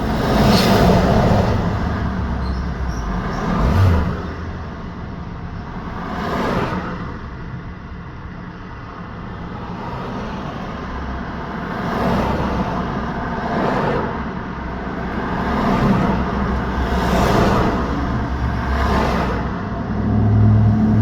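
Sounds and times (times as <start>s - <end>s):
tyre and engine rumble: 0.0s - 8.3s, 14.7s - 21.0s
vehicles passing: 0.0s - 21.0s.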